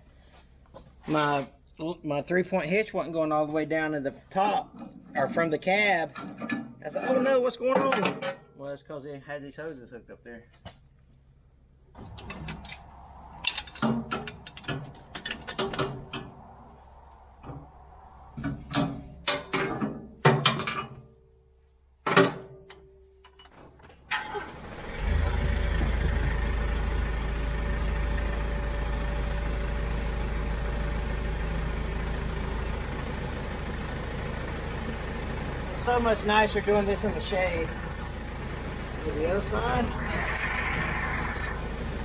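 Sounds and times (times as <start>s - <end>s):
metal clicks and clanks: 6.1s - 6.8s, 12.1s - 16.4s, 18.4s - 21.1s
tractor diesel engine running: 23.9s - 42.0s.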